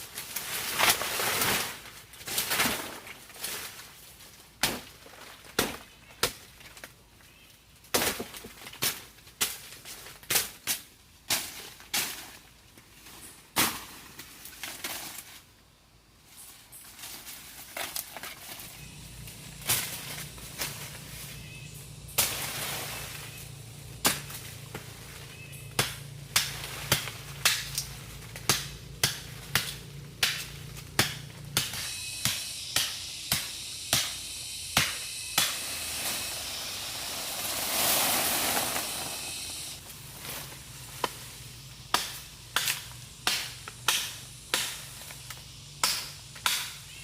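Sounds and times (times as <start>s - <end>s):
hand tool striking: 25.7s - 39.6s, 41.9s - 45.0s, 45.8s - 46.8s
rushing noise: 31.8s - 39.8s.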